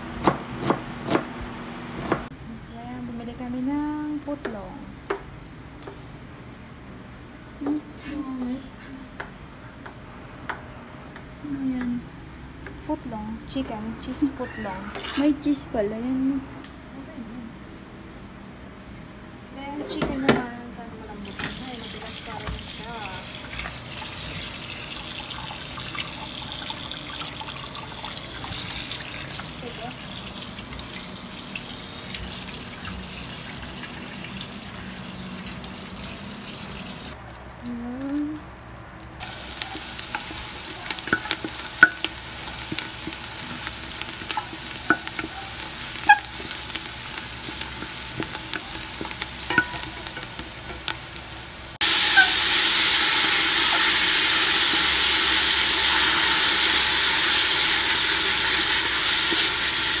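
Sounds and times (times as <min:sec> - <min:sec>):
onion and garlic sizzling in oil: 0:21.0 - 1:00.0
kitchen tap running: 0:21.1 - 0:37.2, 0:39.2 - 1:00.0.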